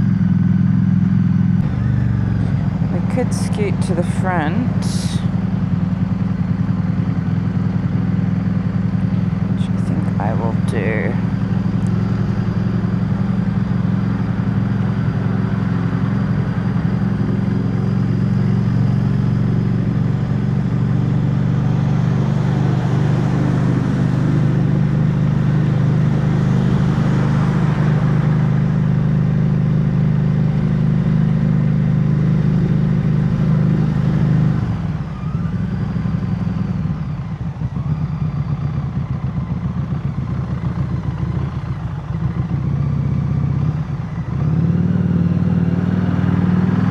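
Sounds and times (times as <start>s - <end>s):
motorcycle engine under throttle: 0.0s - 46.9s.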